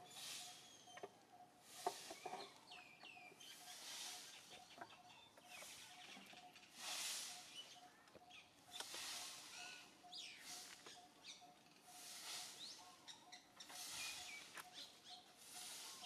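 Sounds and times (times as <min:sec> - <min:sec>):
rustling hiss: 0:00.0 - 0:00.8, 0:03.4 - 0:04.8, 0:05.5 - 0:07.8, 0:08.7 - 0:10.9, 0:11.8 - 0:12.8, 0:13.6 - 0:16.0
high bird chirps: 0:00.0 - 0:16.0.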